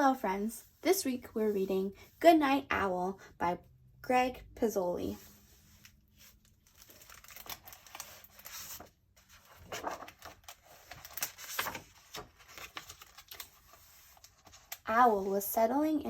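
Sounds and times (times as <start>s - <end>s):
paper rustling: 5.1s - 15.5s
book pages turning with clicks: 5.3s - 14.9s.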